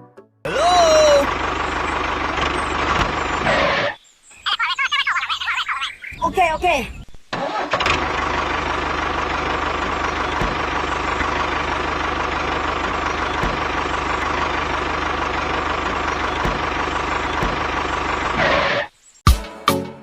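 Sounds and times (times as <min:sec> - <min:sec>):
small engine running: 0:00.7 - 0:04.0, 0:07.4 - 0:18.9.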